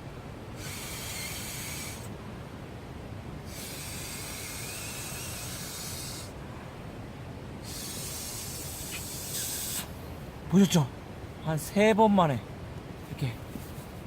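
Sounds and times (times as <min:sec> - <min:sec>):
person blowing into pillow: 0:00.6 - 0:02.1, 0:03.5 - 0:06.4, 0:07.6 - 0:10.0.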